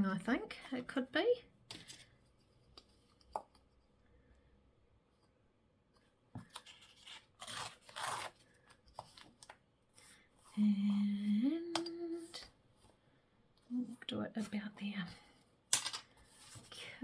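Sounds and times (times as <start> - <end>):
scratchy paper handling: 6.4 - 10.6.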